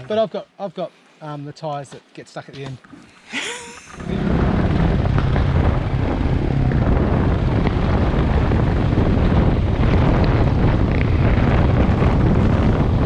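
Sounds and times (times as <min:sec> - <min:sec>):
wind rush on microphone: 0:03.6 - 0:13.0
motorcycle engine running: 0:03.7 - 0:13.0.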